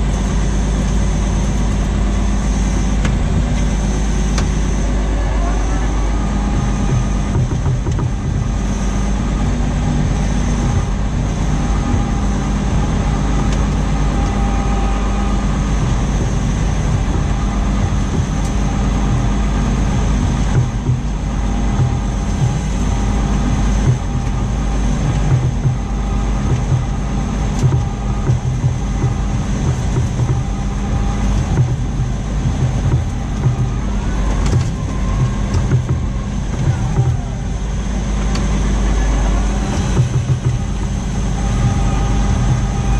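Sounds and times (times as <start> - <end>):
tractor engine running under load: 0.0 - 42.9
light rattles and knocks: 6.6 - 14.4, 15.5 - 38.8, 39.4 - 42.9.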